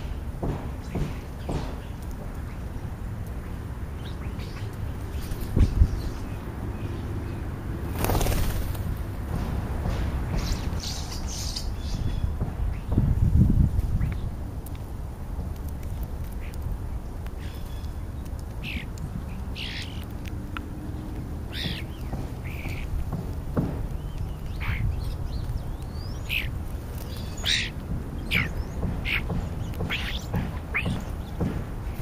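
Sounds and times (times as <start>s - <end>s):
starlings calling: 10.3s - 13.0s, 17.4s - 20.1s, 20.9s - 32.0s.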